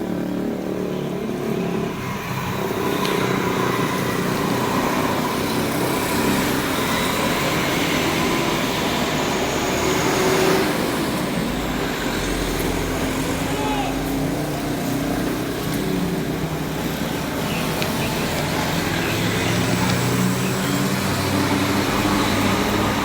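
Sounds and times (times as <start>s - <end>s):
heavy diesel engines running: 0.0s - 23.0s.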